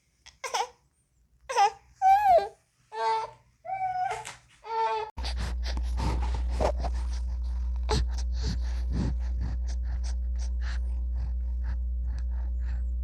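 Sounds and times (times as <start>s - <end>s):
baby breathing and gasping: 5.2s - 13.0s
steady low hum: 5.2s - 13.0s.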